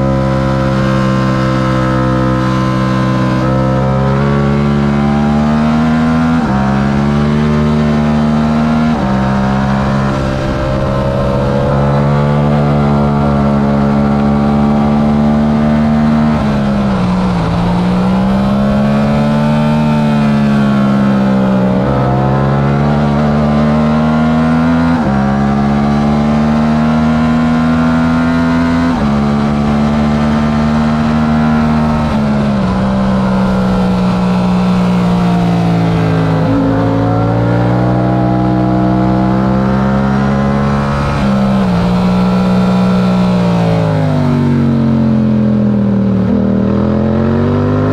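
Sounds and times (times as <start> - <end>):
motorcycle engine revving through gears: 0.0 - 47.9.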